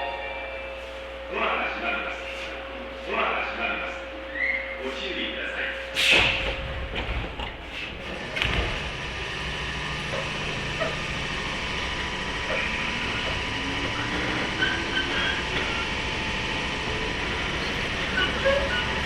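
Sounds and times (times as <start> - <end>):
train running noise: 0.0 - 19.0
train clicks and thump: 6.1 - 9.3
traction motor whine rising: 8.1 - 19.0.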